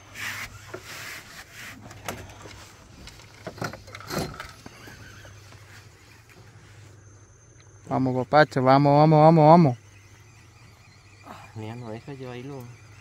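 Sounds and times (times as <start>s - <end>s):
rubbing and scraping: 0.0s - 7.0s
steady low hum: 0.0s - 13.0s.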